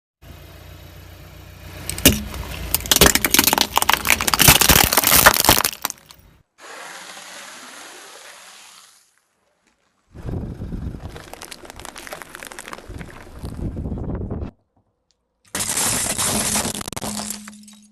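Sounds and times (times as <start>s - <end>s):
car engine hum: 0.2s - 4.4s
tyres crushing crunchy objects: 1.9s - 6.3s, 11.0s - 13.7s, 15.5s - 17.9s.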